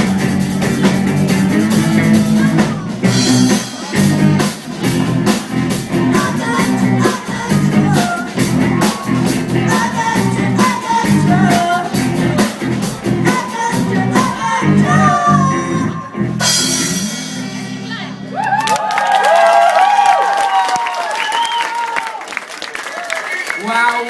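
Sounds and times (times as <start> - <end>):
drum kit beat: 0.0 - 18.6
bass guitar: 0.0 - 18.7
person singing: 4.9 - 16.2.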